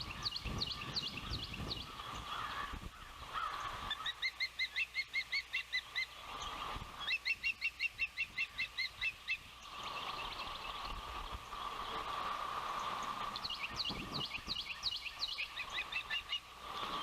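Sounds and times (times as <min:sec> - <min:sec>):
osprey whistled chirps: 0:03.9 - 0:11.0, 0:13.4 - 0:17.0.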